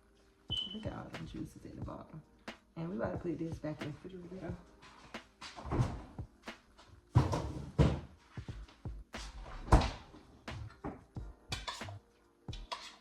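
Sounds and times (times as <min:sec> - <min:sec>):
faint background music: 0:00.0 - 0:13.0.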